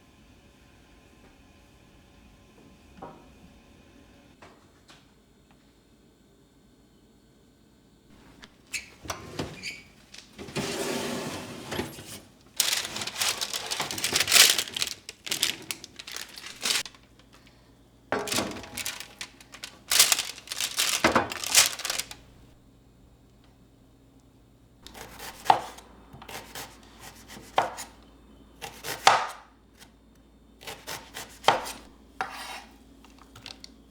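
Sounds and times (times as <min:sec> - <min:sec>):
crinkling and rustling: 0:08.2 - 0:17.6, 0:18.2 - 0:22.4, 0:33.0 - 0:33.8.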